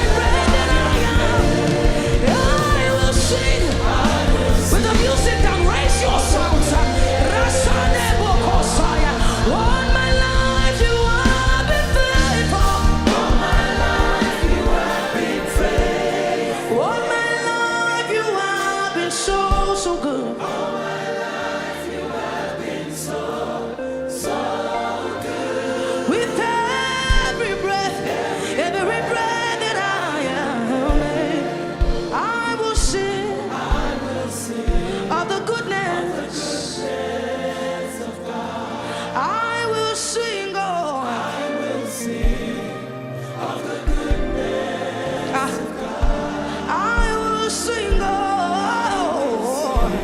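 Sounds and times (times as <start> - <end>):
drum beats: 0.0 - 16.6, 33.7 - 35.1, 43.8 - 48.3, 49.7 - 50.0
group singing gospel music: 0.0 - 50.0.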